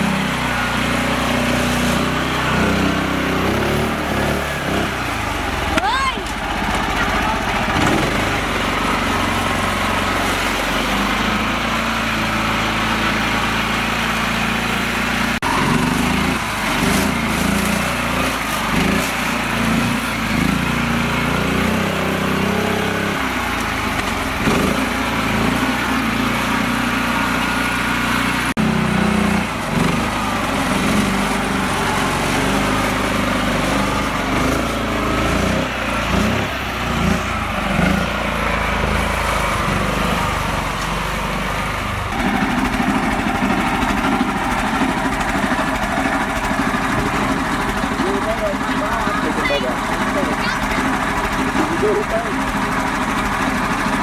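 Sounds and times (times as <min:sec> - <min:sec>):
small tractor engine running: 0:00.0 - 0:54.0.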